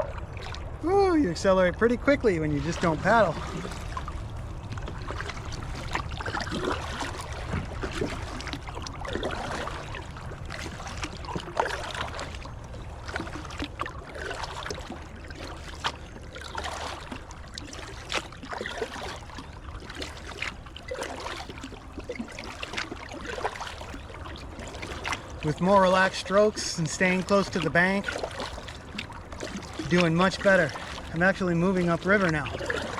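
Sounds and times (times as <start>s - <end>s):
steady low rumble: 0.0s - 18.1s
paddle strokes splashing: 0.0s - 32.9s
water gurgling along hull: 0.0s - 32.9s.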